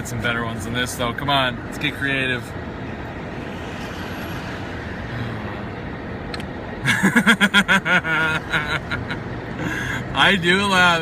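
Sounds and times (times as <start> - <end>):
car driving road noise: 0.0 - 11.0
man laughing loudly: 6.8 - 9.2.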